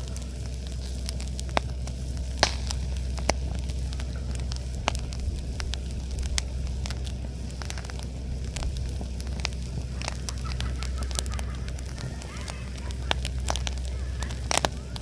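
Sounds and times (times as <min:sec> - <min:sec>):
boat engine droning: 0:00.0 - 0:15.0
campfire crackling and popping: 0:00.0 - 0:15.0.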